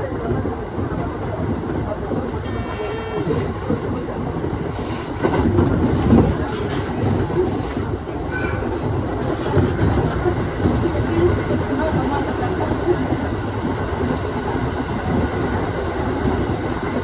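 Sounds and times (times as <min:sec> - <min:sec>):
train wheels rumbling on rails: 0:00.0 - 0:17.0
brief high tone: 0:02.4 - 0:03.6.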